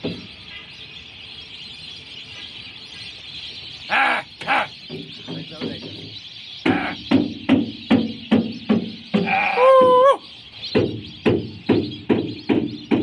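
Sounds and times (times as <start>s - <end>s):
chatter of many birds: 0.0s - 13.0s
short harsh bird calls: 3.7s - 7.4s, 9.0s - 10.7s
wavering bleat-like call: 3.9s - 4.7s, 9.2s - 10.2s.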